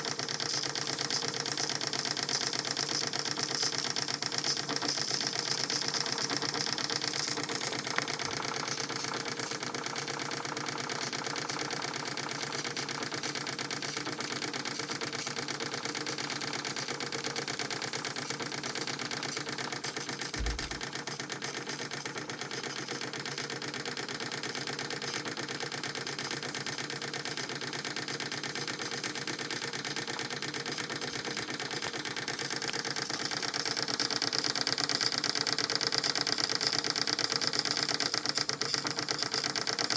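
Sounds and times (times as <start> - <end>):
steam engine mechanical clatter: 0.0 - 39.9
low thump: 20.4 - 20.8.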